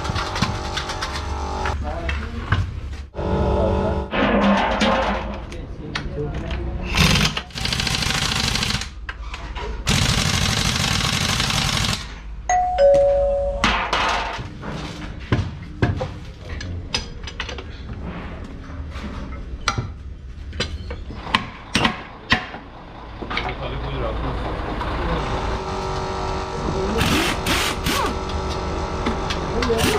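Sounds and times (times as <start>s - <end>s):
brief ringing tone: 12.5s - 13.6s.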